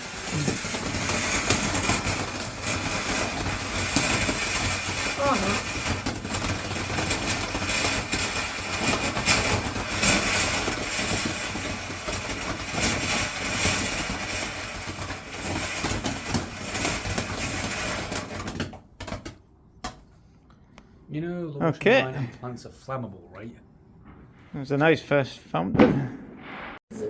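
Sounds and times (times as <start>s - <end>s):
fountain firework hissing: 0.0s - 19.2s
firework crackles: 0.0s - 20.0s.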